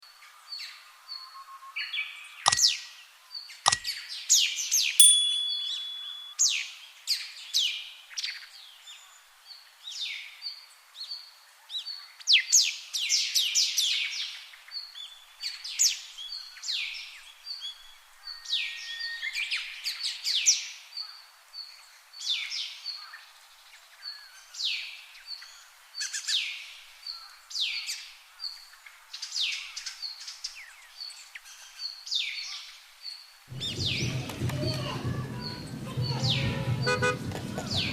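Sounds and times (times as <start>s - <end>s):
faint repeated bird peep: 2.5s - 2.7s
bird chirps falling: 5.0s - 6.3s.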